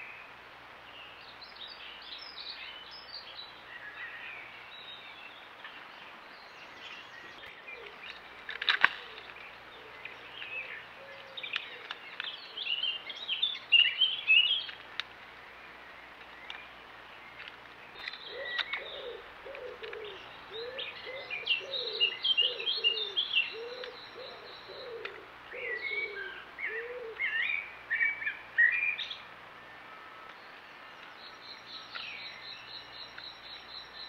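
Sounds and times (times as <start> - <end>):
birds warbling song: 0.0 - 34.0
low repeated bird notes: 0.0 - 34.0
high ticking bird notes: 7.4 - 25.9, 30.3 - 34.0.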